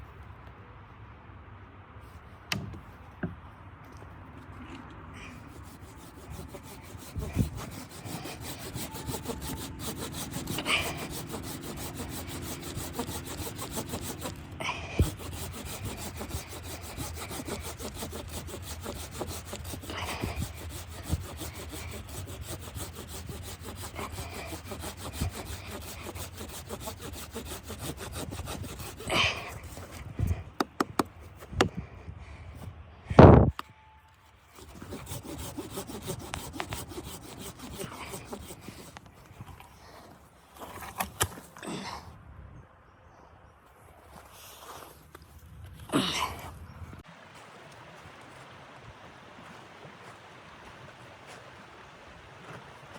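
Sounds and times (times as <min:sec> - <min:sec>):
rough scraping and rasping: 0:04.6 - 0:31.8, 0:34.4 - 0:41.9.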